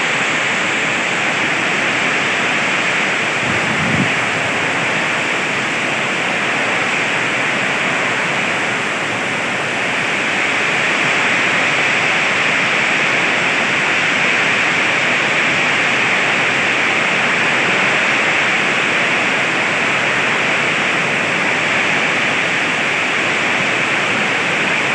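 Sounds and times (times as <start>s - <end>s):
strong wind: 0.0s - 7.0s
heavy rain pouring: 0.0s - 24.9s.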